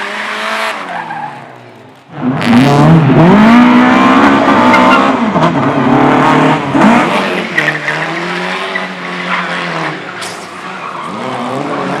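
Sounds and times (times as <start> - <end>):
race car engine revving: 0.0 - 12.0
tyres squealing and skidding: 0.7 - 1.6, 4.3 - 5.2, 6.8 - 12.0.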